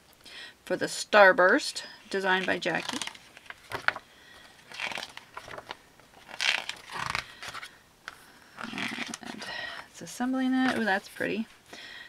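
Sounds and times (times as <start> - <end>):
paper rustling: 2.1 - 7.7, 8.6 - 9.5.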